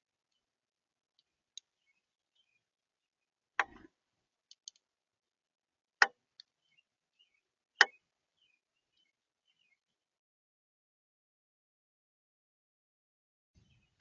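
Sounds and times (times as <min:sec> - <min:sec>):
birds pecking on a feeder: 0:03.6 - 0:04.8
faint clicks: 0:04.5 - 0:04.8.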